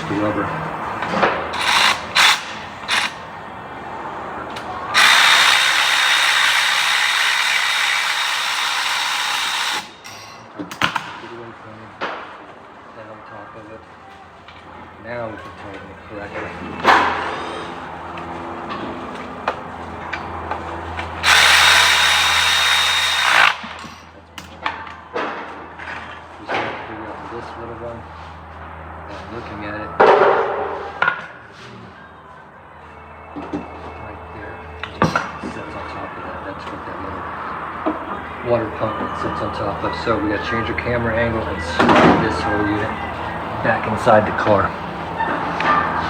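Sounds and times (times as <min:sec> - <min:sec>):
handheld power tool whining: 0:00.0 - 0:03.7, 0:04.4 - 0:10.3, 0:21.0 - 0:24.0.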